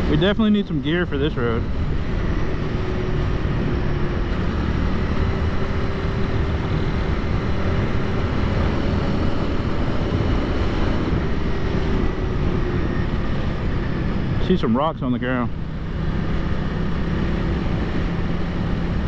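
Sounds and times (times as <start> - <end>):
wind rumble on microphone: 0.0 - 14.7
motorcycle engine running: 0.0 - 19.0.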